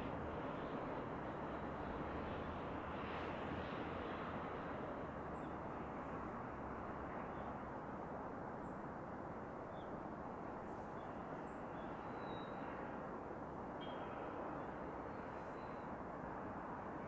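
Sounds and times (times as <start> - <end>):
background rush of noise: 0.0 - 17.0
faint bird chirps: 10.8 - 12.7, 13.8 - 15.9.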